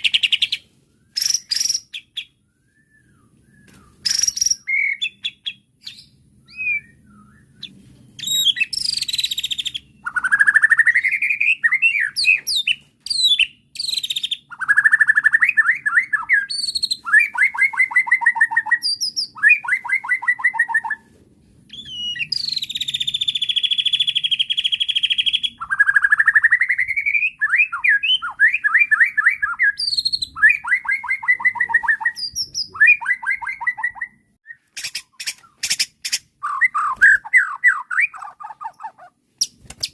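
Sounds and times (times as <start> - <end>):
songbird singing: 0.0 - 21.1, 21.7 - 39.9.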